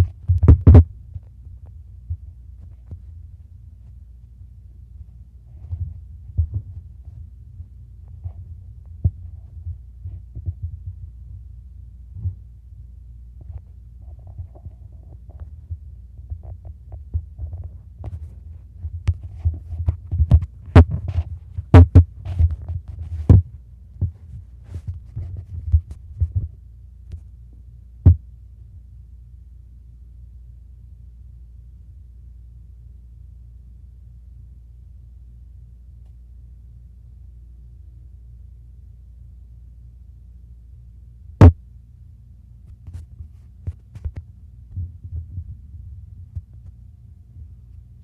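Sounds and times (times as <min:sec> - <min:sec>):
steady low hum: 0:00.0 - 0:48.0
soft knocks and bumps: 0:05.5 - 0:11.0.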